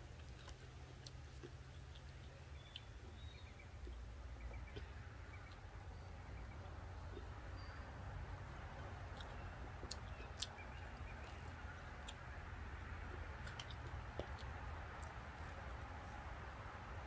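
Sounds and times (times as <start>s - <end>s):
faint chewing: 0.0s - 17.0s
steady low hum: 0.0s - 17.0s.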